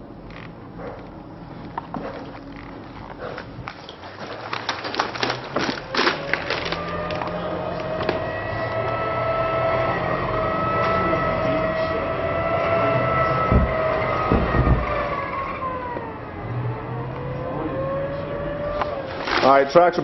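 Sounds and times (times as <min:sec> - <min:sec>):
tracked vehicle high whine: 0:00.0 - 0:20.0
low thumps: 0:13.1 - 0:15.4.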